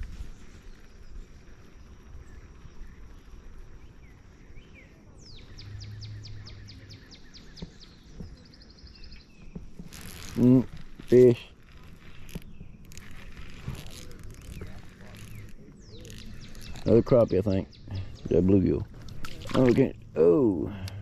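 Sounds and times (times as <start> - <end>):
faint outdoor background noise: 0.0 - 21.0
songbird singing: 0.0 - 21.0.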